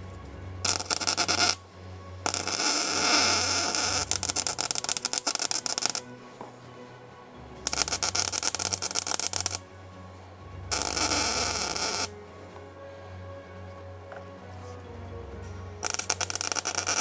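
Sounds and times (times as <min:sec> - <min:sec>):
background music: 0:00.0 - 0:17.0
welding crackle: 0:00.6 - 0:01.6, 0:02.3 - 0:06.2, 0:07.7 - 0:09.6, 0:10.7 - 0:12.7, 0:15.8 - 0:17.0.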